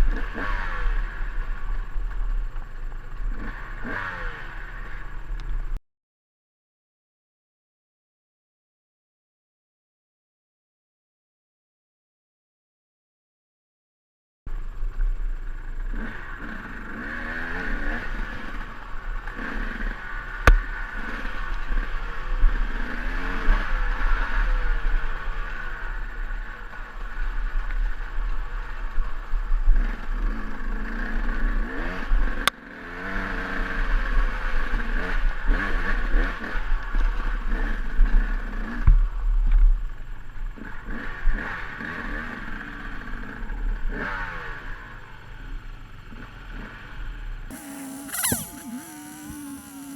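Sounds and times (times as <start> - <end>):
dirt bike engine revving: 0.0 - 1.7, 3.2 - 5.3, 15.9 - 24.5, 29.8 - 36.7, 47.5 - 49.9
sharp clicks: 47.5 - 49.9.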